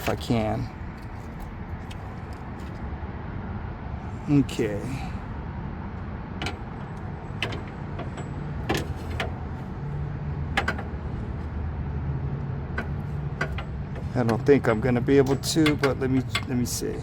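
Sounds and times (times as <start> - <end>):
hand tools clicking on metal: 12.8 - 17.0.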